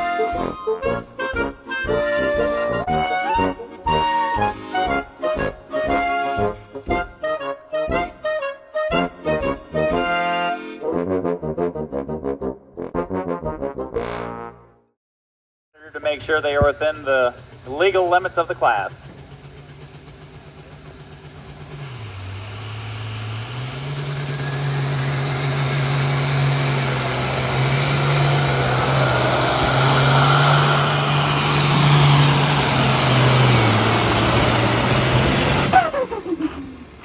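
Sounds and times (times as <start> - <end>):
vehicle engine running hard: 0.0 - 7.2, 16.9 - 37.0
falling whine: 17.3 - 37.0.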